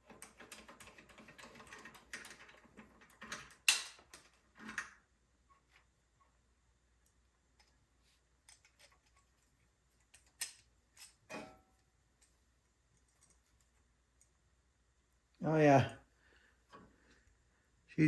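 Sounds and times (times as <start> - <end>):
small metal parts clicking: 0.0 - 5.0, 10.0 - 11.3.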